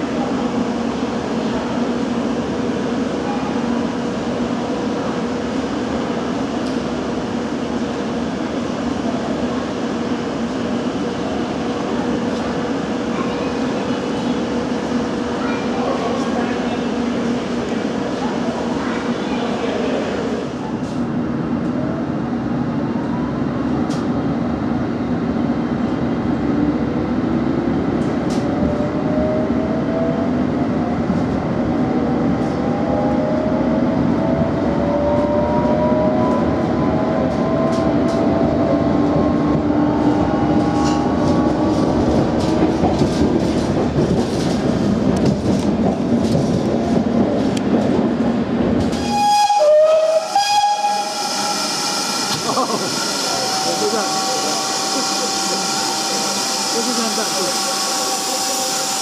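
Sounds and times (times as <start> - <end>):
steam locomotive hiss: 50.8 - 59.0
traction motors whining: 51.4 - 59.0.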